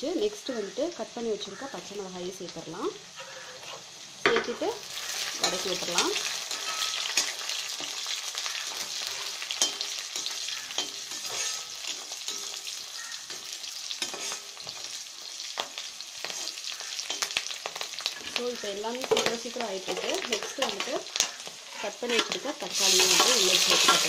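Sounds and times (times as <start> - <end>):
onions sizzling in hot oil: 0.0 - 24.0
metal spatula scraping a pan: 3.1 - 4.0, 4.9 - 15.0, 16.2 - 24.0.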